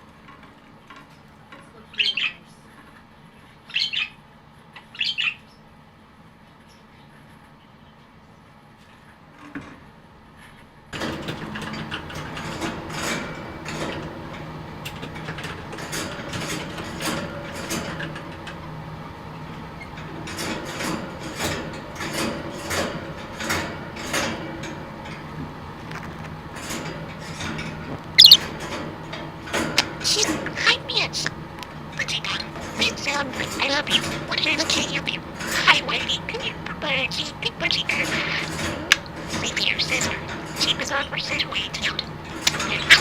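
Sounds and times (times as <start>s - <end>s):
machine humming: 11.3s - 43.0s.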